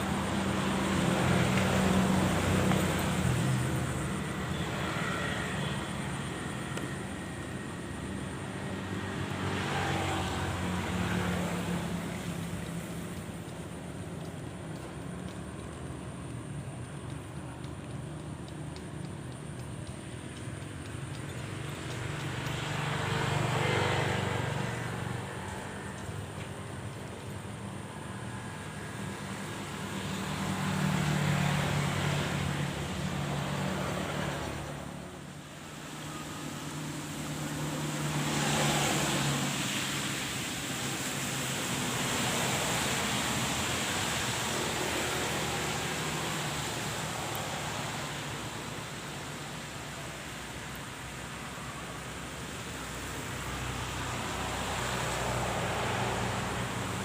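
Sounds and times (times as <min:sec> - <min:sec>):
steady outdoor hiss: 0:00.0 - 0:57.0
vehicles passing by: 0:00.0 - 0:57.0.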